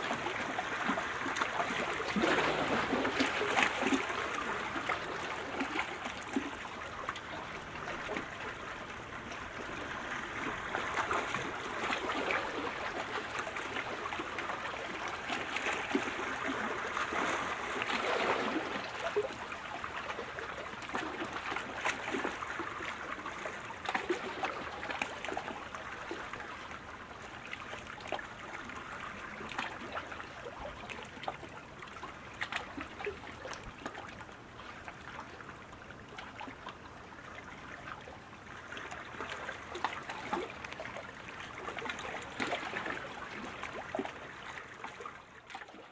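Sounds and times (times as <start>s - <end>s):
kayak paddle splashing: 0.0s - 8.5s, 38.7s - 45.9s.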